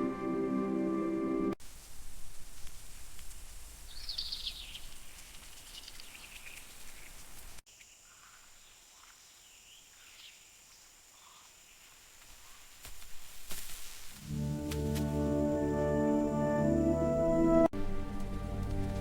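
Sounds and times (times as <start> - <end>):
high insect hiss: 3.8 - 15.0
bird chirping: 3.9 - 11.8
faint bird calls: 5.6 - 12.8.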